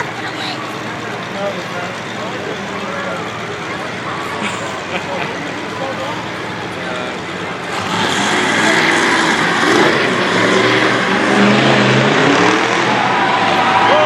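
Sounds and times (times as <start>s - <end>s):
loud vehicle engine: 0.0s - 14.0s
dense roar: 7.1s - 14.0s.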